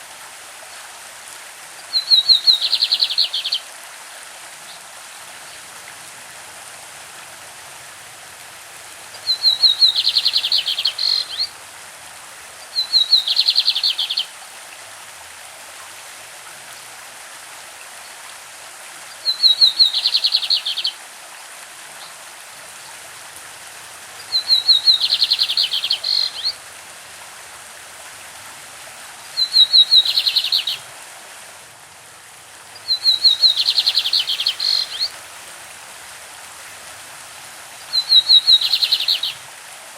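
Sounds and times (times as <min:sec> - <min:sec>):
stream rushing: 0:00.0 - 0:39.9
bird singing trills: 0:02.0 - 0:03.6, 0:09.2 - 0:11.5, 0:12.8 - 0:14.3, 0:19.3 - 0:20.9, 0:24.3 - 0:26.5, 0:29.4 - 0:30.8, 0:32.8 - 0:35.1, 0:37.9 - 0:39.4.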